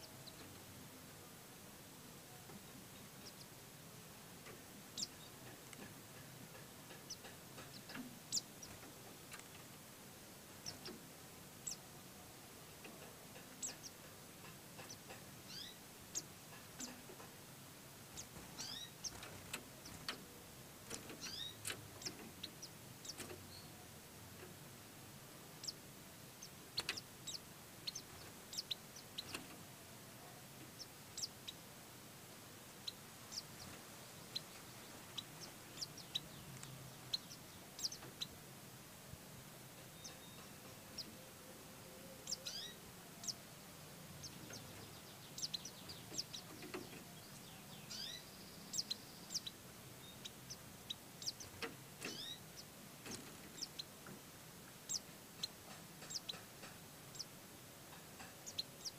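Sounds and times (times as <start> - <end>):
high bird chirps: 18.2 - 20.1, 21.2 - 23.8, 42.2 - 43.4, 44.2 - 53.9.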